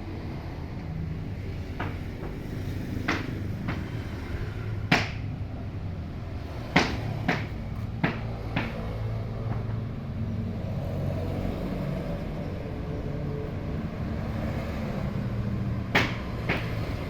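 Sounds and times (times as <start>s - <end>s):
low engine hum: 0.0s - 17.0s
wooden boards knocking: 1.8s - 3.9s, 6.8s - 8.9s, 15.9s - 16.8s.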